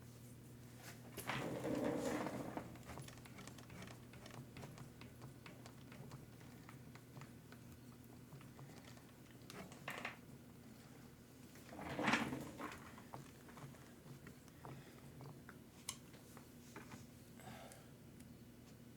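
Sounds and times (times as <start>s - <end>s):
low electrical hum: 0.0s - 18.9s
rustling scrape: 0.8s - 2.9s, 11.7s - 13.1s
small parts clicking and tapping: 2.8s - 10.2s.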